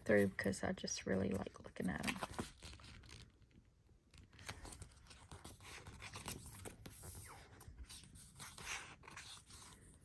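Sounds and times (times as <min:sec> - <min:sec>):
paper pages rustling: 0:04.1 - 0:10.0.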